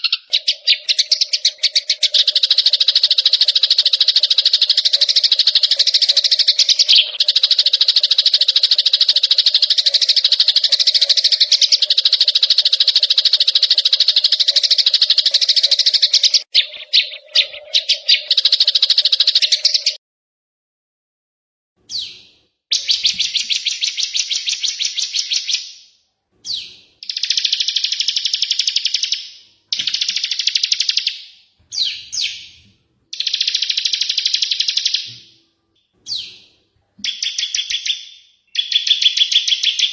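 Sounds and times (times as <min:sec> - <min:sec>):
chattering bird song phrases: 0:00.0 - 0:20.0
songbird trilling: 0:00.0 - 0:20.0, 0:26.4 - 0:35.4, 0:36.0 - 0:39.9.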